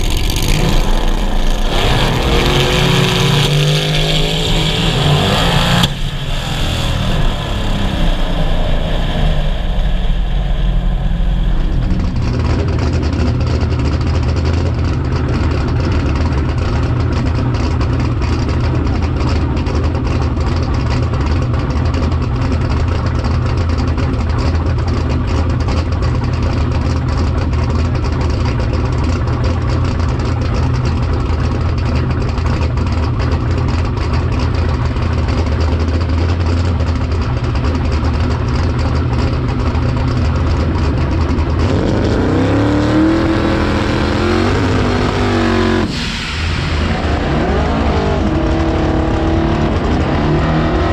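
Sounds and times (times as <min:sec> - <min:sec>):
engine idling with pulsing beat: 0:00.0 - 0:03.7, 0:04.3 - 0:43.6
race car engine winding down: 0:00.0 - 0:50.9
wind rush: 0:03.6 - 0:14.1.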